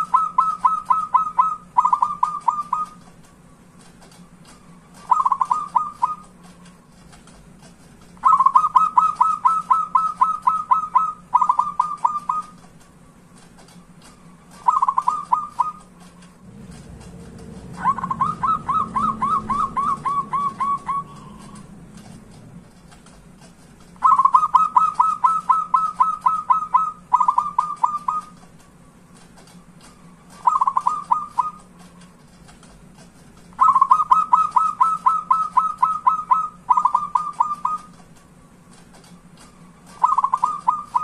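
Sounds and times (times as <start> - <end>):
dove cooing: 0.0 - 3.0, 5.0 - 6.3, 8.2 - 12.6, 14.6 - 15.9, 16.7 - 21.8, 24.0 - 28.4, 30.4 - 31.6, 33.6 - 37.9, 40.0 - 41.0.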